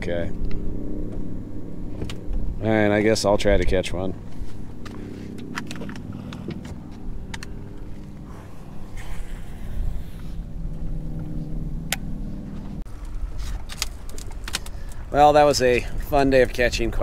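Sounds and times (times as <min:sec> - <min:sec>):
motor humming: 0:04.2 - 0:13.2.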